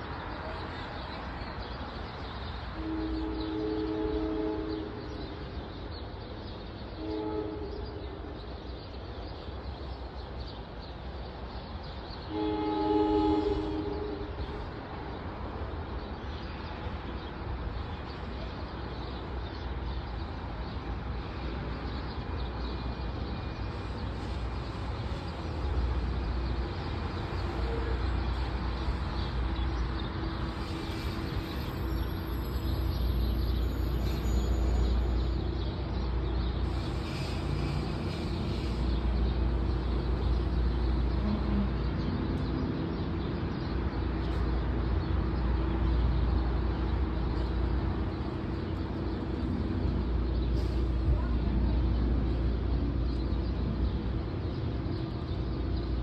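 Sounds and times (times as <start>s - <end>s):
train rumble: 0.0s - 56.0s
train horn blasts: 2.8s - 5.2s, 7.0s - 8.0s, 12.3s - 14.6s, 27.4s - 28.6s.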